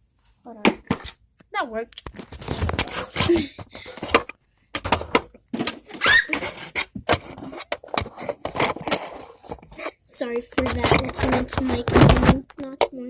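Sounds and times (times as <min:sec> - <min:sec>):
objects clicking and clattering: 0:02.0 - 0:09.9, 0:10.5 - 0:13.0
rising squeak: 0:06.0 - 0:06.4.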